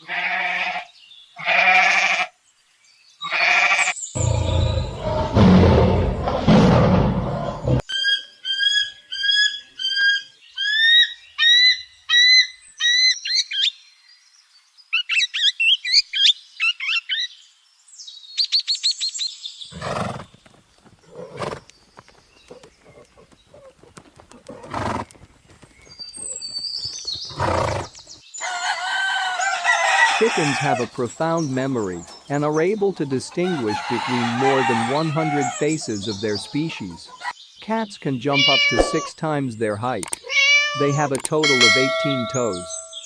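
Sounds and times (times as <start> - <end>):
harsh animal calls: 0.0 - 2.3, 3.2 - 7.9, 29.2 - 37.3, 38.2 - 39.2, 40.2 - 41.0
bird chirps and warbling: 35.4 - 39.2.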